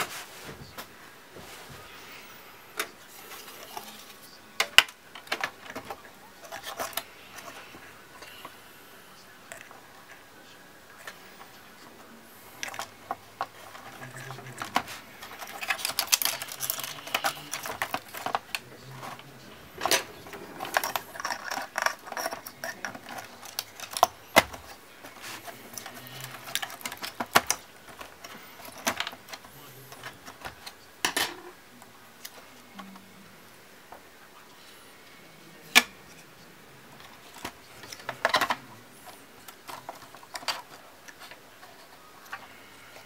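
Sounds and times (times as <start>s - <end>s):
clicks and rattles of small parts: 12.6s - 19.2s, 19.8s - 31.4s, 37.0s - 43.0s.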